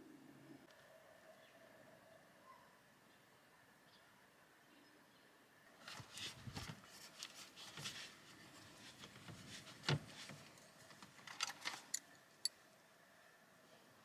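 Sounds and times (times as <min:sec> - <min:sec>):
plastic trim rubbing and clicking: 0:05.9 - 0:12.0.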